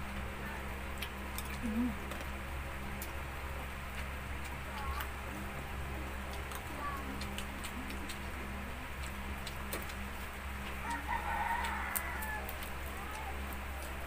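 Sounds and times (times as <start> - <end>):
steady low hum: 0.0 - 14.0
rooster crowing: 10.8 - 13.3.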